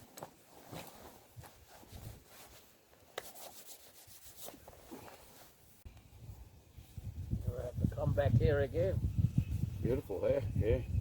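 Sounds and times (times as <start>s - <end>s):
soft scuffing and rubbing: 0.0s - 5.8s.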